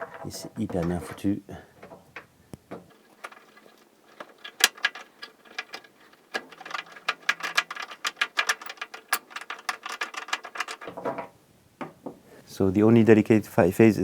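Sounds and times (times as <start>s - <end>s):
hand tool clicking: 1.9s - 11.0s.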